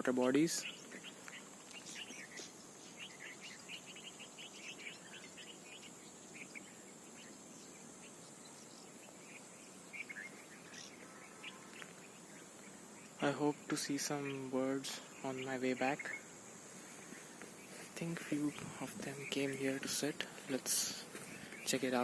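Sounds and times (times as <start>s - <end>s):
high insect drone: 0.0s - 22.0s
short bird chirps: 0.6s - 12.4s.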